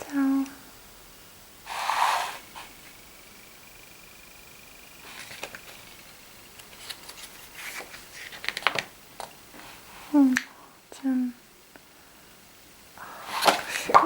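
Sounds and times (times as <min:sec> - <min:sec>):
faint high whine: 0:00.0 - 0:14.0
paper pages turning: 0:05.0 - 0:08.9.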